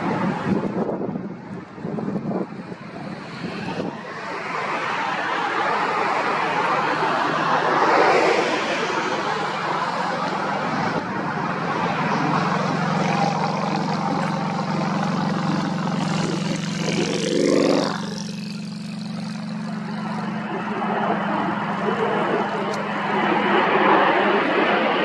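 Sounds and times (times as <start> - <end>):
wind on microphone: 0.0 - 19.6
jet aircraft engines: 0.0 - 25.0.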